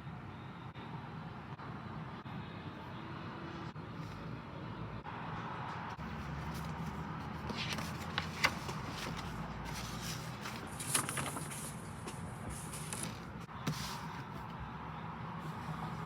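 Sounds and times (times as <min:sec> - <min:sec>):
packaging rustling: 0:06.5 - 0:14.0.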